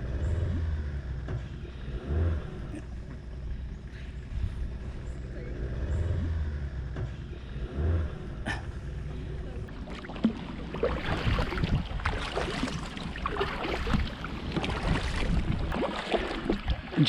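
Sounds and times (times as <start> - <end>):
kayak paddles splashing water: 9.5 - 17.0
wind buffeting microphone: 10.6 - 17.0.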